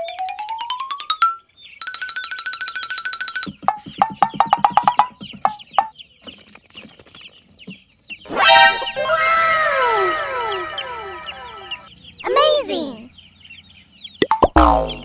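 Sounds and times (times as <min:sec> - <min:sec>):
falling whistling tones: 0:08.3 - 0:11.9.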